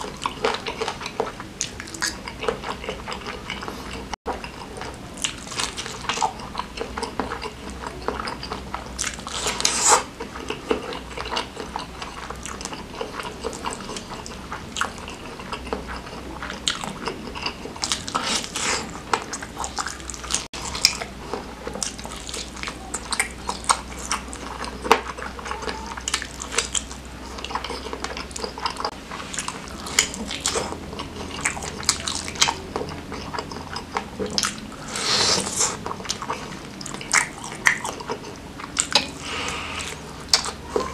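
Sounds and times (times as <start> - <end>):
wet chewing and biting: 0.0 - 40.9.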